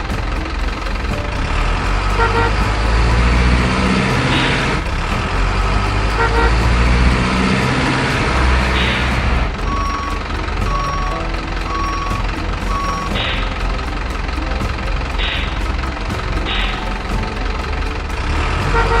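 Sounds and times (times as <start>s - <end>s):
truck engine rumbling: 0.0s - 19.0s
truck horn toots: 1.4s - 5.1s, 5.7s - 13.6s, 17.7s - 19.0s.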